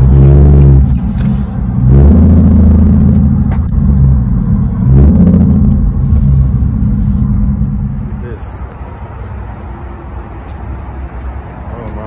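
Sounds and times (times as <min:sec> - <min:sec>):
car engine accelerating hard: 0:00.0 - 0:08.6
deep exhaust rumble: 0:00.0 - 0:12.0.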